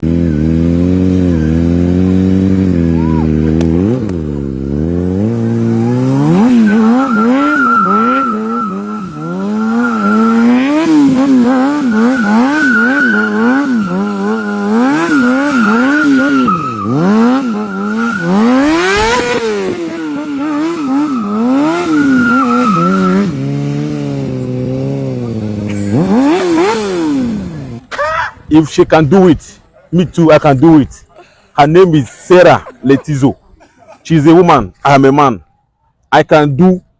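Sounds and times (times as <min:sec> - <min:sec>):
motorcycle engine revving: 0:00.0 - 0:27.9
high tyre squeal: 0:05.2 - 0:24.6.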